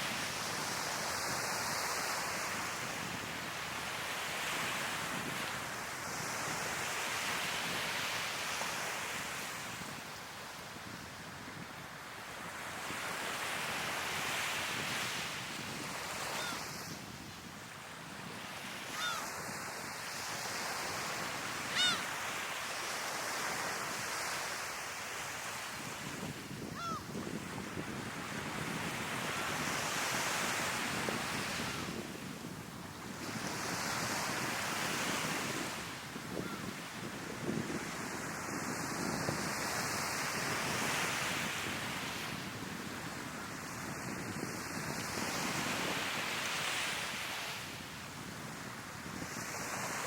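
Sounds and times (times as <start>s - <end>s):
gulls calling: 19.0s - 19.3s, 21.7s - 22.2s.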